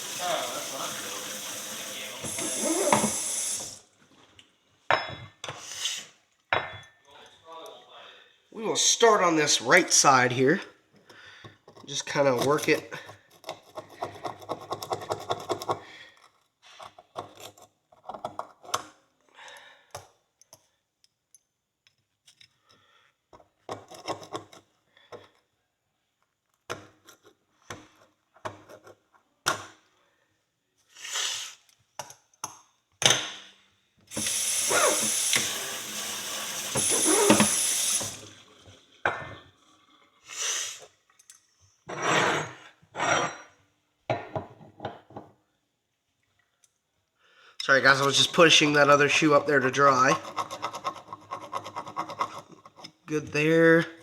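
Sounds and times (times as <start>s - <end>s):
water running: 0.0s - 3.9s, 34.1s - 38.7s.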